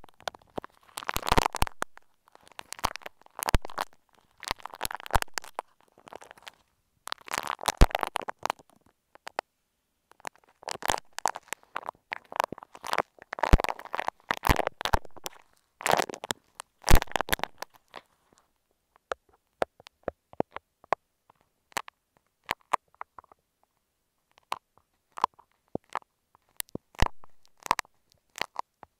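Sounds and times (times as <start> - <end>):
clay squished on microphone: 0.0 - 8.7, 10.2 - 18.1.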